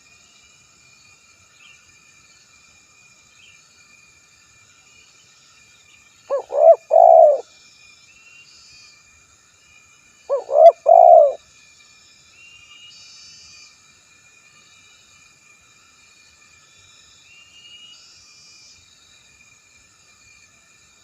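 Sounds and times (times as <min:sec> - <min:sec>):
dove cooing: 0:06.3 - 0:07.4, 0:10.3 - 0:11.4.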